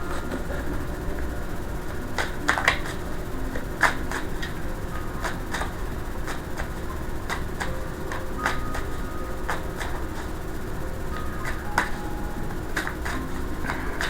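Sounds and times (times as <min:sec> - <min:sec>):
cards being shuffled: 0:02.1 - 0:10.3.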